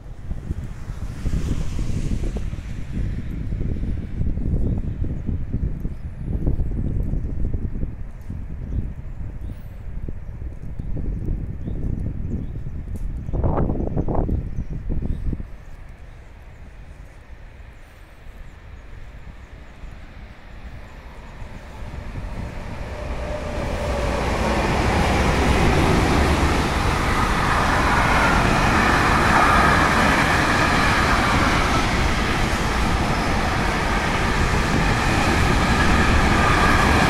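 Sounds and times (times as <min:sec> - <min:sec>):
freight train rumbling past: 0:00.0 - 0:06.4, 0:14.8 - 0:37.0.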